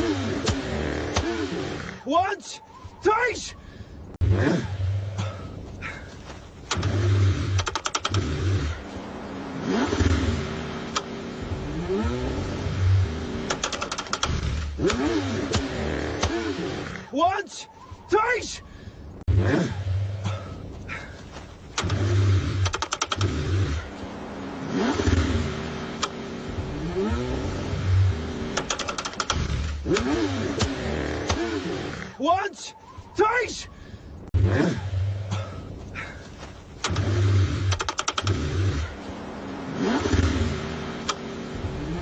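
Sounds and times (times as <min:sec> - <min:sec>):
car engine cranking: 0:00.0 - 0:02.1, 0:06.2 - 0:17.1, 0:21.3 - 0:32.2, 0:34.4 - 0:42.0
quick clicks: 0:06.6 - 0:08.3, 0:13.4 - 0:16.4, 0:21.8 - 0:23.4, 0:28.5 - 0:31.4, 0:36.8 - 0:38.4.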